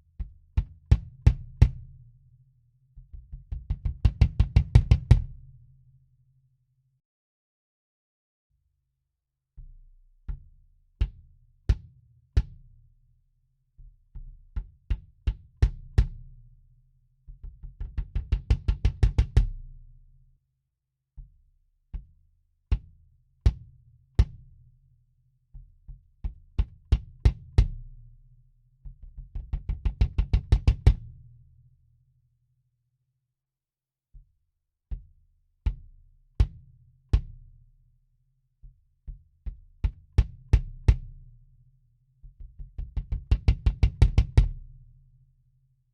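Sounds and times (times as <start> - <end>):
muffled kick drum strokes: 42.2 - 44.8.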